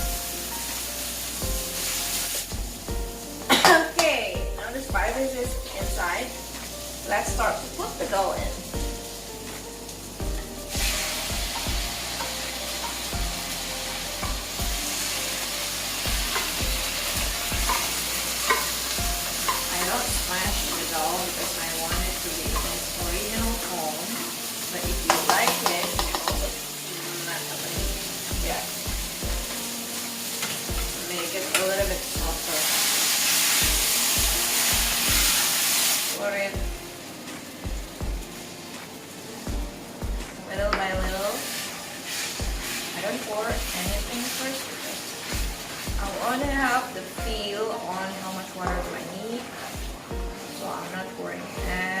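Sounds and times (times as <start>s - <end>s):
background music with low beat: 0.0s - 23.7s, 24.8s - 26.7s, 27.8s - 29.8s, 30.6s - 31.1s, 31.8s - 32.5s, 33.6s - 35.5s, 36.6s - 41.3s, 42.4s - 42.8s, 43.5s - 44.2s, 45.3s - 47.6s, 48.6s - 49.1s, 49.7s - 50.5s
food sizzling in a pan: 0.0s - 52.0s
spoon knocking against pan: 25.1s - 26.6s.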